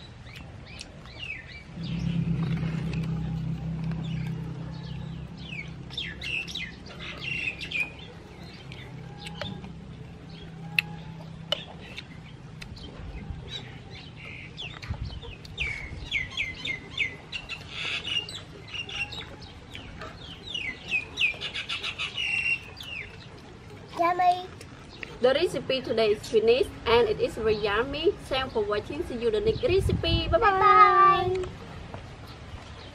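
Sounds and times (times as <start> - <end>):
low steady hum: 0.0 - 23.9
birds chirping: 0.0 - 32.9.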